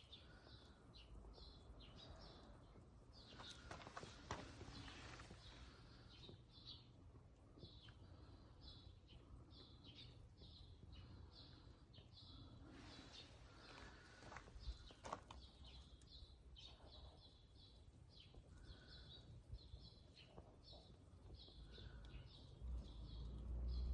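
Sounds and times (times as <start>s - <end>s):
low outdoor rumble: 0.0s - 23.9s
small bird chirping: 0.0s - 23.9s.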